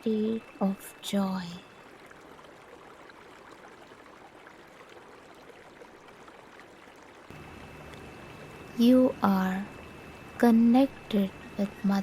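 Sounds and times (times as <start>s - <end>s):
thin steady high tone: 0.0s - 2.0s, 7.3s - 12.0s
low hum: 0.0s - 3.1s, 7.2s - 12.0s
flowing water: 0.0s - 12.0s.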